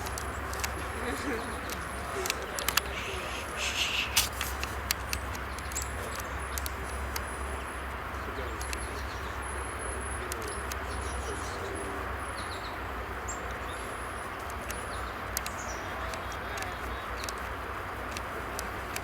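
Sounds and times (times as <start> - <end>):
birds chirping and whistling: 0.0 - 7.5
low rumble and hiss: 0.0 - 19.0.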